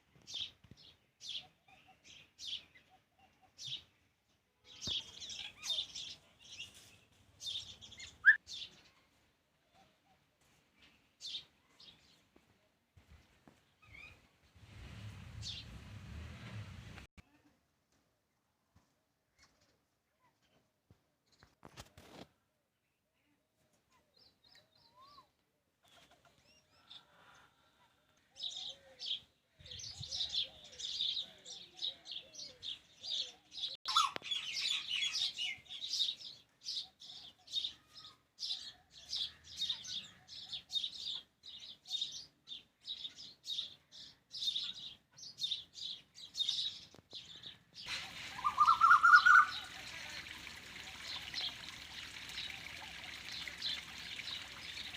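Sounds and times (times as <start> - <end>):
small birds chirping: 0.2 - 12.4, 13.0 - 16.6, 23.2 - 54.9
running water: 47.8 - 54.9.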